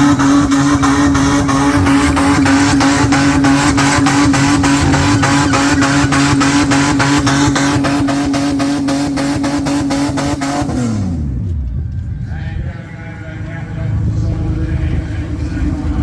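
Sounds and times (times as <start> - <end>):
car engine on rev limiter: 0.0 - 11.5.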